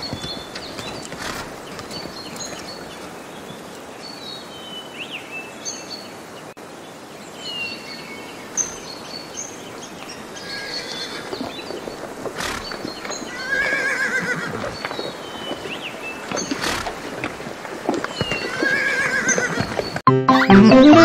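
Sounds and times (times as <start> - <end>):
small birds chirping and singing: 0.0 - 17.3
outdoor background hiss: 0.5 - 11.4, 12.1 - 16.8.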